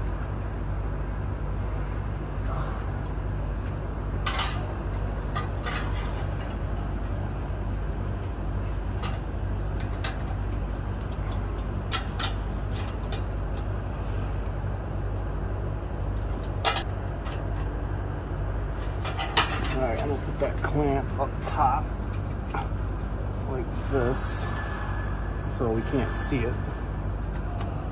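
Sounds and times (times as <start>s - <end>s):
steady low hum: 0.0s - 27.9s
metal exhaust clamp clanking: 4.1s - 7.2s, 8.9s - 13.7s, 16.1s - 17.7s, 18.8s - 22.7s.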